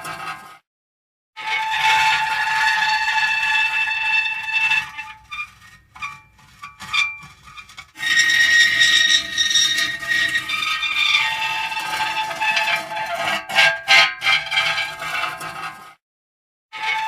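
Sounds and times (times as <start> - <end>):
metal squealing: 1.4 - 15.8
short metal creaks: 4.8 - 13.4.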